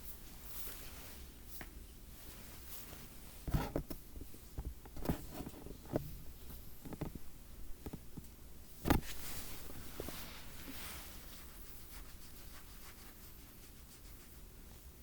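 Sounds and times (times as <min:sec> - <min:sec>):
soft knocks and rustles: 0:01.6 - 0:11.2.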